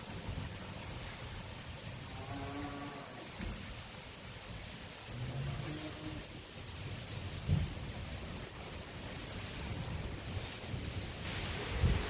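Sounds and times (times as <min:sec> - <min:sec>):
heavy rain hissing: 0:00.0 - 0:12.0
gusting wind rumble: 0:09.6 - 0:12.0.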